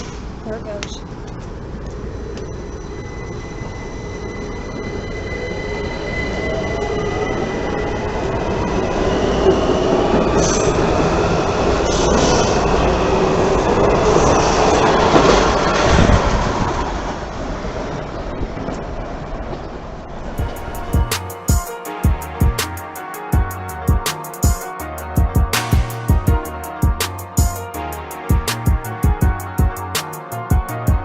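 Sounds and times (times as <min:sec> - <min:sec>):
wheels rumbling on rail: 0:00.0 - 0:21.4
train propulsion whine: 0:01.0 - 0:31.0.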